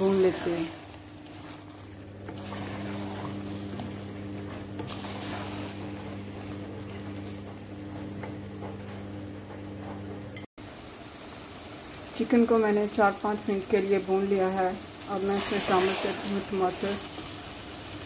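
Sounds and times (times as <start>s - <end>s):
chicken sizzling in oil: 0.0s - 9.5s, 10.3s - 18.0s
wooden spoon scraping a pot: 0.0s - 10.1s
steady low hum: 0.0s - 10.5s.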